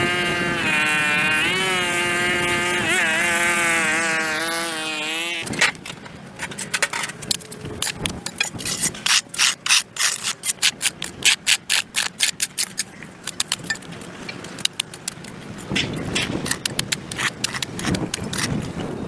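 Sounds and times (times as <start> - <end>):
hand tool scraping concrete: 7.9 - 13.8, 14.4 - 18.9.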